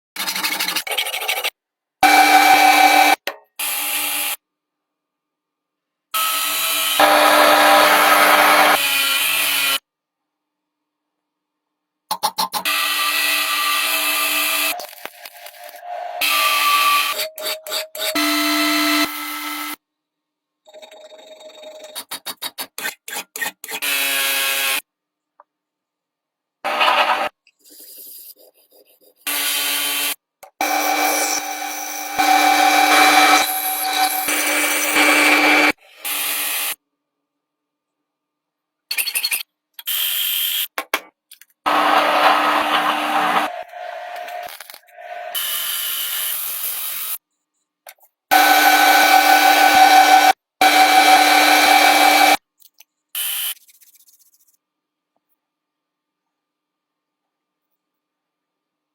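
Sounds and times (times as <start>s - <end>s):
electric power tool whining: 30.6s - 35.8s, 41.7s - 45.8s, 48.3s - 52.4s.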